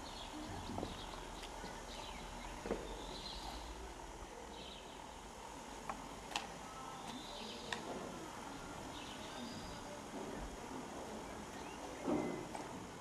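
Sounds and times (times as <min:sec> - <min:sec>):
birds chirping: 0:00.0 - 0:03.8, 0:06.6 - 0:07.8, 0:08.4 - 0:12.5
outdoor background hiss: 0:00.0 - 0:13.0.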